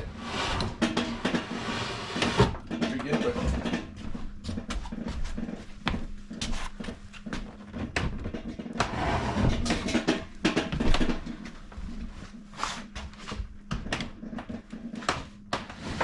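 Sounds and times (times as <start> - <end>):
cabinet scraping: 0.0 - 3.9, 8.6 - 10.3, 15.5 - 16.0
wooden cabinet knocks and clatters: 7.4 - 11.5.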